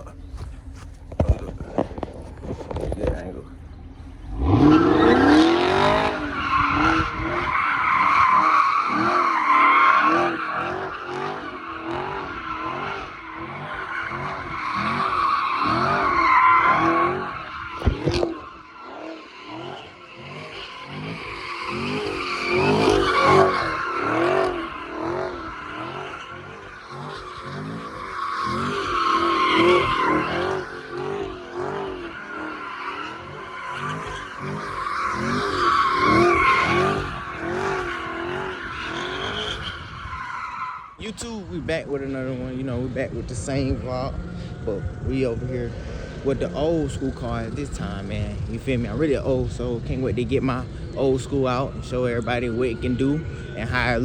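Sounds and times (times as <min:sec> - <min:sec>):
tyres squealing: 0:00.0 - 0:41.5
car engine revving: 0:00.0 - 0:54.0.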